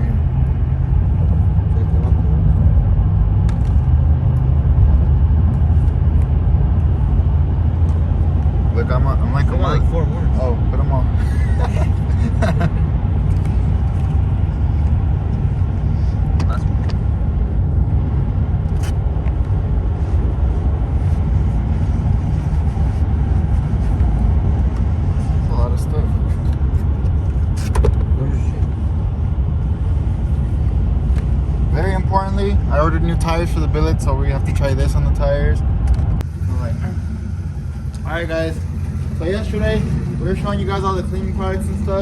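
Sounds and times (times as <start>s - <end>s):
car engine rumble: 0.0s - 42.0s
road noise: 0.0s - 42.0s.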